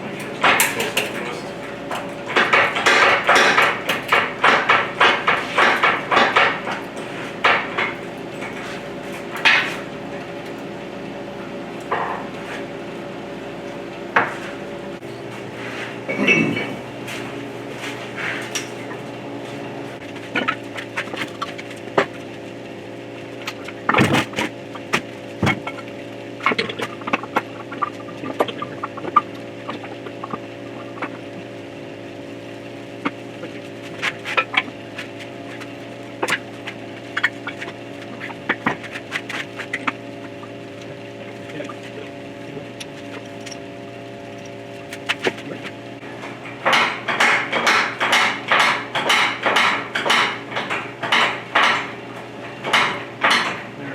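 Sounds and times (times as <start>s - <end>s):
metal tools clinking: 0.0s - 9.8s
rapid metal impacts: 0.0s - 10.4s, 45.0s - 53.8s
machine hum: 0.0s - 53.9s.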